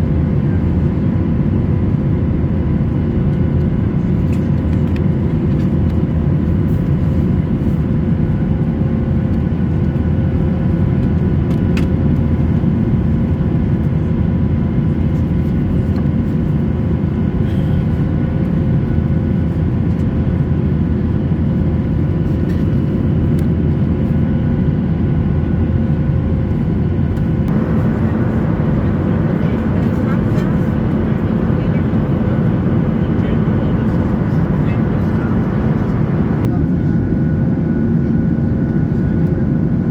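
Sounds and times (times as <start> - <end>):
airplane cabin low rumble: 0.0 - 39.9
faint steady hum: 27.5 - 36.5.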